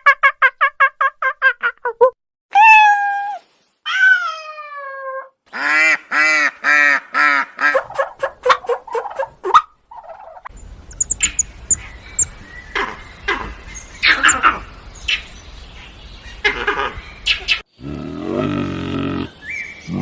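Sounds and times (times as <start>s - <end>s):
animal calls: 7.6s - 14.6s
faint high chirps: 10.6s - 12.5s.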